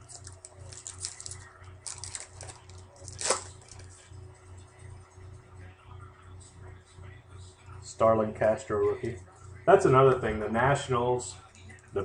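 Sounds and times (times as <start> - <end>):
trading cards rustling: 0.0 - 4.0.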